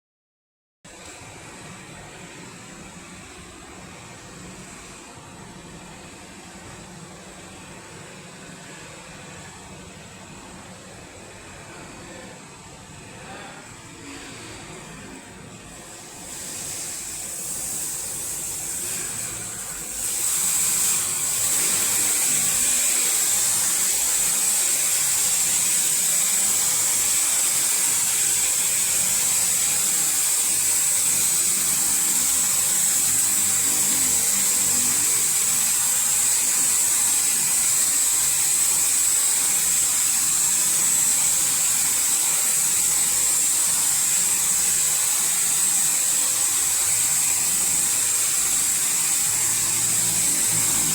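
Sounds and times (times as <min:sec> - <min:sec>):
car wash spraying water: 0:14.5 - 0:50.9.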